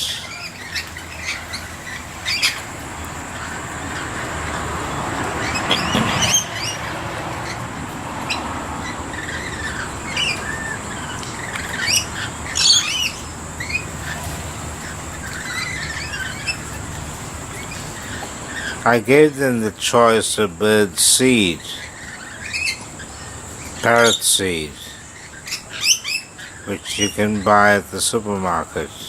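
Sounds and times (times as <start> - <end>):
rushing noise: 0.0 - 19.7
lorikeets screeching: 0.0 - 29.0.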